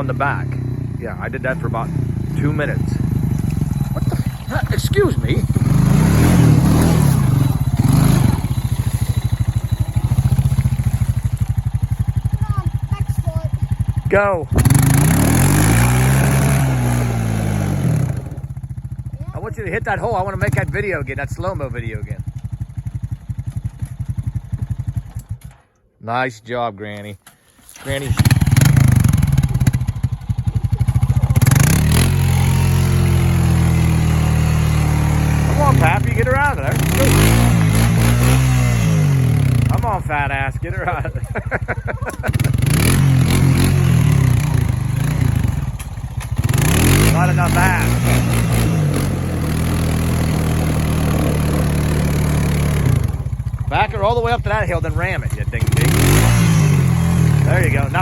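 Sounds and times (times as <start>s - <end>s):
atv engine revving and idling: 0.0s - 25.6s, 27.7s - 58.0s.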